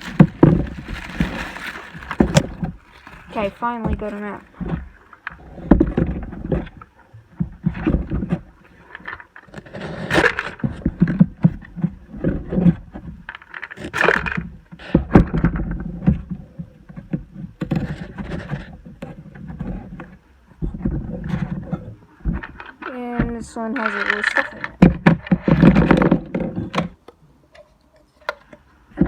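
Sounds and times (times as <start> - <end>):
packaging rustling: 0.0 - 5.0, 22.6 - 26.1.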